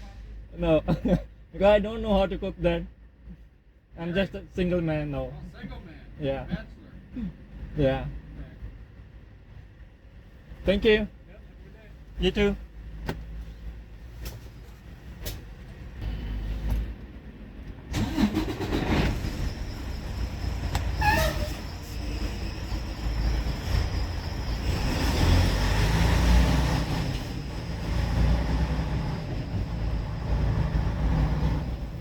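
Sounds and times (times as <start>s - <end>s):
road noise: 0.0s - 32.0s
truck diesel engine pulling away: 15.9s - 32.0s.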